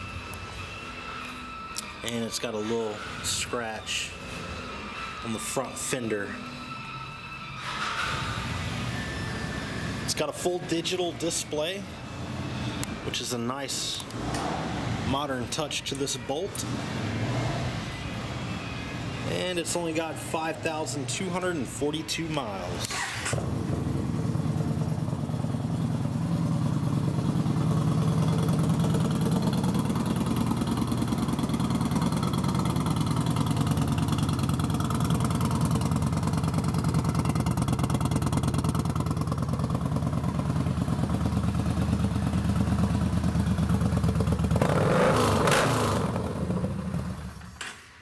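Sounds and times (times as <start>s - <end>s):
motorcycle engine idling: 23.4s - 47.6s.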